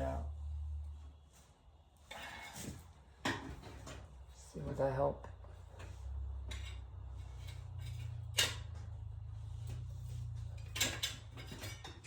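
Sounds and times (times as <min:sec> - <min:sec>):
tools clinking against metal: 0:10.6 - 0:12.0.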